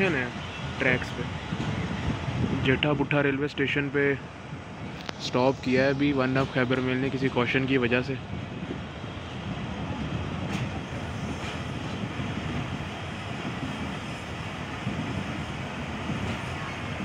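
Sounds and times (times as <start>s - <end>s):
train coach rumbling: 0.0s - 17.0s.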